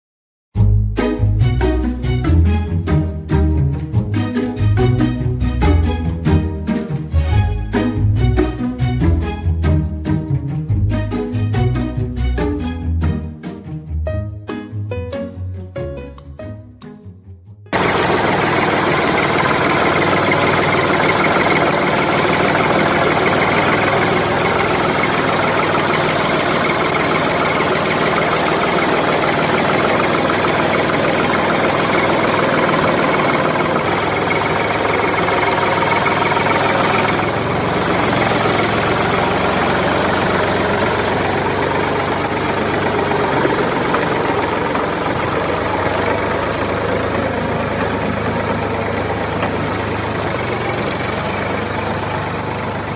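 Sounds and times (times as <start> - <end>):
motor droning: 17.8 - 52.9.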